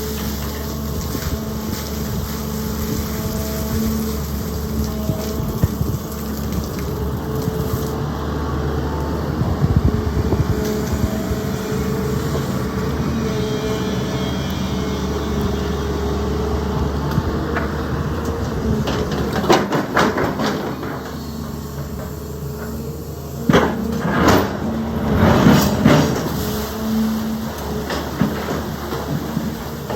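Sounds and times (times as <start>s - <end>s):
excavator diesel engine running: 0.0s - 29.9s
clanks and knocks of stones: 18.8s - 22.8s, 27.6s - 29.9s.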